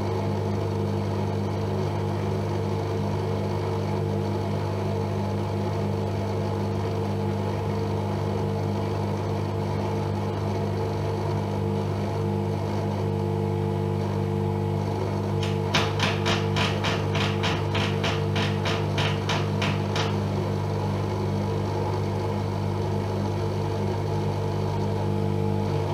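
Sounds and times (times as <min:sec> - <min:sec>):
washing machine humming: 0:14.3 - 0:25.9
rapid regular knocking: 0:15.4 - 0:20.9.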